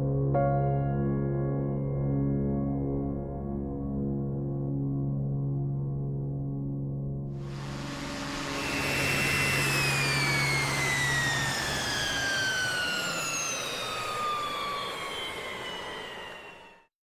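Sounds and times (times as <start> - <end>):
jet aircraft passing by: 7.4 - 16.9.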